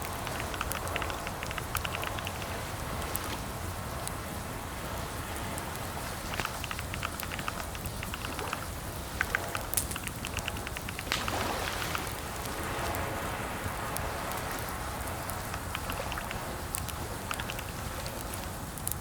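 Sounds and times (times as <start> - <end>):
computer keyboard typing: 0.0 - 2.6, 6.1 - 12.0, 15.4 - 18.4
rain-like background hiss: 0.0 - 19.0.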